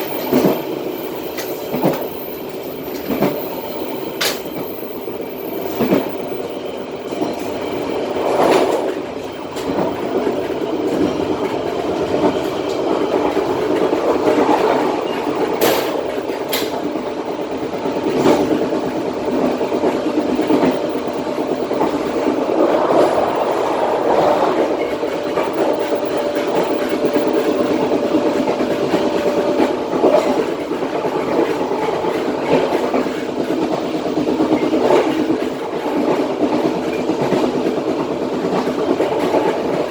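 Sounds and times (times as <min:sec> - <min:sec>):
clickety-clack over rail joints: 0:00.0 - 0:39.9
train wheels rumbling on rail: 0:00.0 - 0:39.9
faint steady whine: 0:14.0 - 0:30.2.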